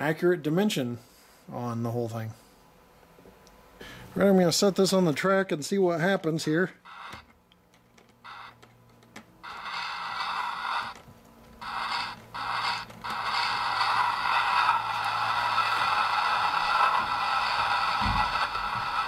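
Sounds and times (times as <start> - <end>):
steam rushing from small speaker: 6.9 - 7.2, 9.4 - 11.0, 11.6 - 19.0.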